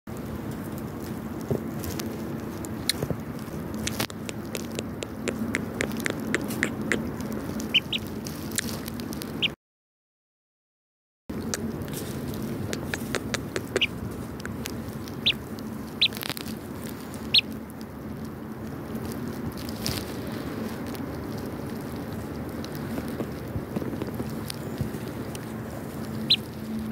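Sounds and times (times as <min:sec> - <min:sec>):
handling rustle: 0:00.1 - 0:09.5, 0:11.4 - 0:26.9
chick peeping: 0:04.2 - 0:08.1, 0:12.7 - 0:14.5, 0:15.1 - 0:16.5, 0:17.2 - 0:17.6, 0:25.9 - 0:26.6.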